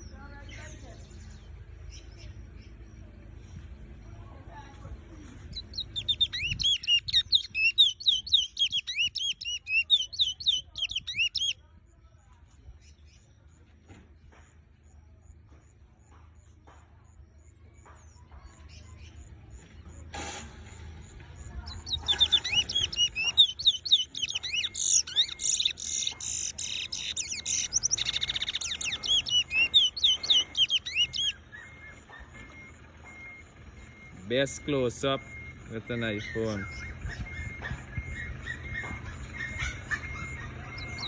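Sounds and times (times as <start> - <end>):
bullfinch singing: 0.0 - 11.6, 18.5 - 41.0.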